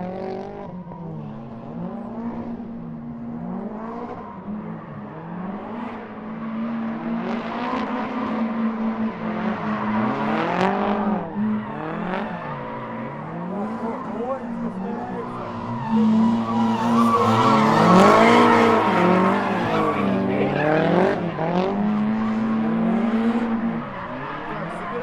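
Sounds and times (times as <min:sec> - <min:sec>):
car engines revving: 0:00.0 - 0:25.0
tyre screech: 0:11.4 - 0:21.2.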